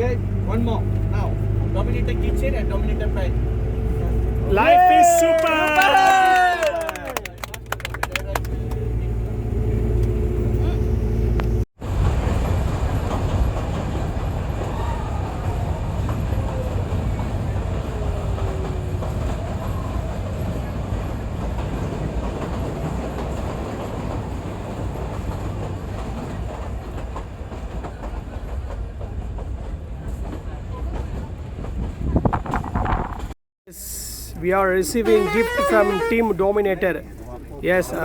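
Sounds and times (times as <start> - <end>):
train carriages rumbling and rattling: 0.0 - 5.3, 7.4 - 33.4.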